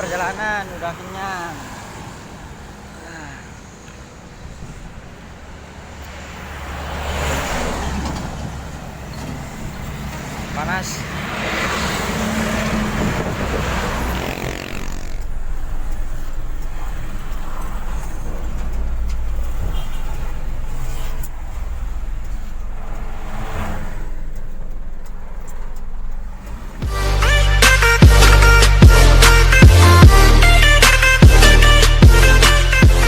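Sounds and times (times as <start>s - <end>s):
road and traffic noise: 0.0s - 33.0s
truck engine running: 7.7s - 33.0s.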